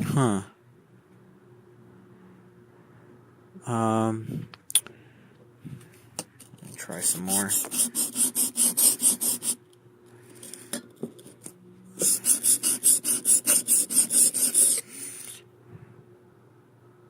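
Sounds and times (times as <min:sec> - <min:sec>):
chisel rasping on sandpaper: 0:06.9 - 0:09.6, 0:12.0 - 0:15.4.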